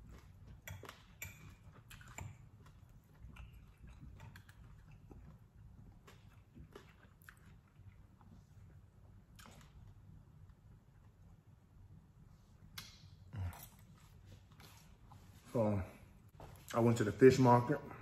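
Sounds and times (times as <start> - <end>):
person chewing: 0.0 - 11.2, 12.7 - 15.2.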